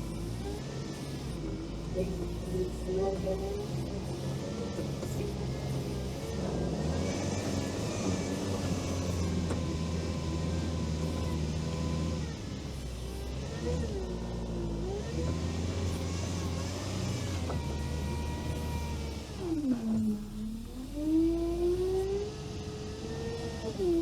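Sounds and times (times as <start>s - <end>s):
all-terrain vehicle engine running: 0.0s - 24.0s
thin steady whine: 0.0s - 24.0s.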